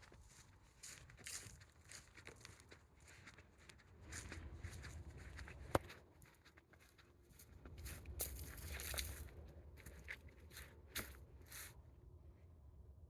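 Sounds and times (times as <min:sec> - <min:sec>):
footsteps crunching on trail: 0:00.0 - 0:11.7.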